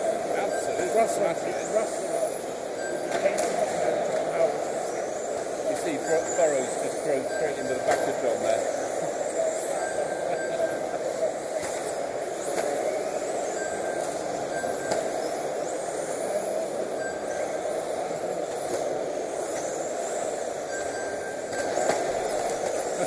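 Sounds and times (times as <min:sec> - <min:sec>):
rc truck motors whining: 0:00.0 - 0:23.0.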